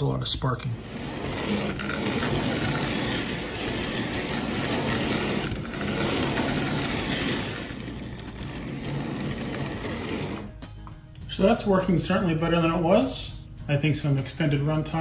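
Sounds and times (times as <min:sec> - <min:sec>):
small electric motor whirring: 0:00.8 - 0:10.7
toy train wheels rattling: 0:00.9 - 0:10.5.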